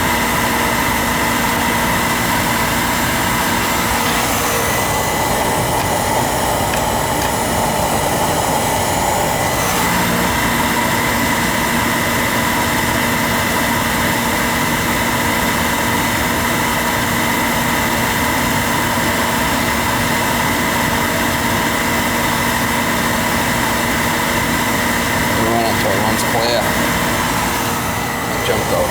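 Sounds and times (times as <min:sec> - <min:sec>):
oil burner humming and whining: 0:00.0 - 0:28.9.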